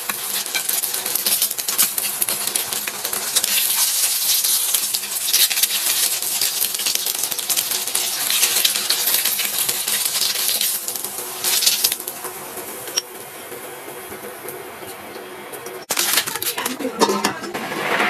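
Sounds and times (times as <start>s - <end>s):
food sizzling in hot oil: 0.0s - 13.4s.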